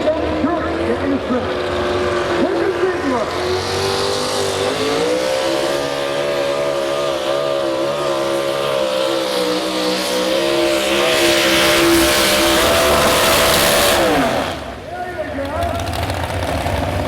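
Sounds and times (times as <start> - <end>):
truck engine running at high revs: 0.0 - 17.0.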